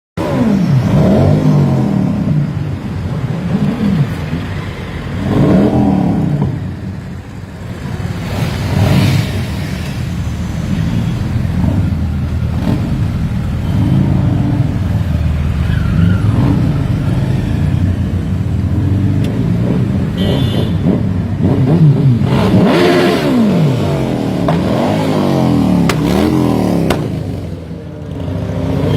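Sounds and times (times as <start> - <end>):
motorcycle engine revving: 0.2 - 4.5, 7.7 - 28.9.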